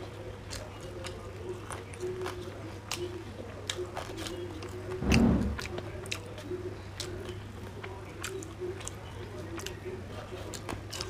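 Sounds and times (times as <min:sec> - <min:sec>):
person chewing wetly: 0:00.0 - 0:05.0, 0:05.6 - 0:11.0
dull low thump: 0:05.0 - 0:05.7.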